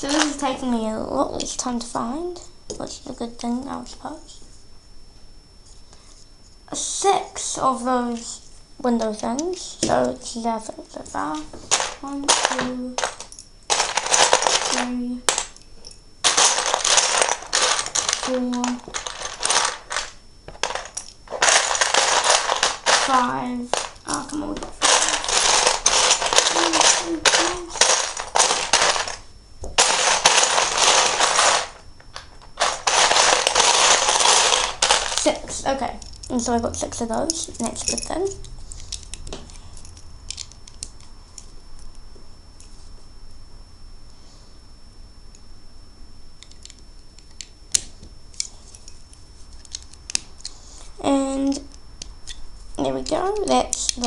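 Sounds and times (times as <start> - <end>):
plastic bricks clattering: 0.0 - 0.5, 11.6 - 15.5, 16.2 - 29.2, 29.8 - 31.8, 32.4 - 35.6.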